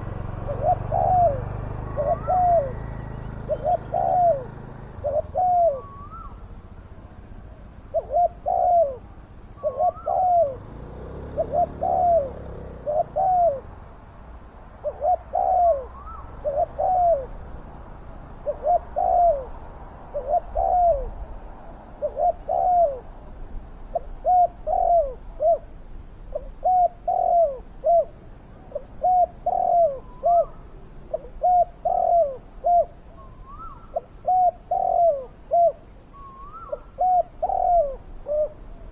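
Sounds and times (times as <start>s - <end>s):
faint higher bird calls: 0.0s - 23.1s, 23.9s - 38.9s
doves cooing: 0.0s - 38.9s.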